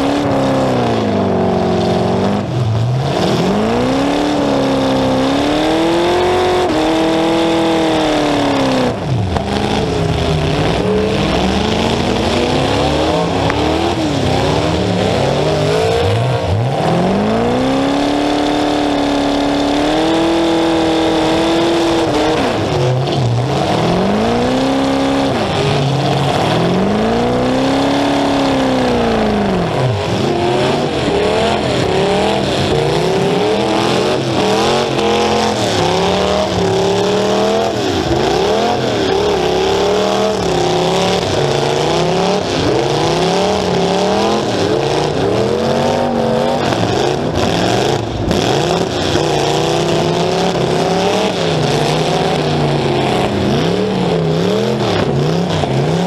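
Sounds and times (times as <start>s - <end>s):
car engine revving loudly: 0.0s - 56.0s.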